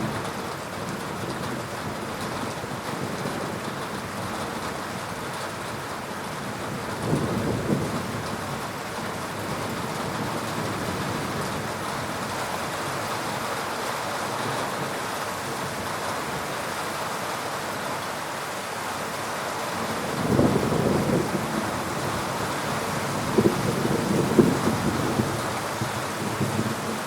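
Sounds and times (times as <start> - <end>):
heavy rain falling: 0.0 - 27.0
low rumble of thunder: 5.8 - 12.3, 19.8 - 27.0.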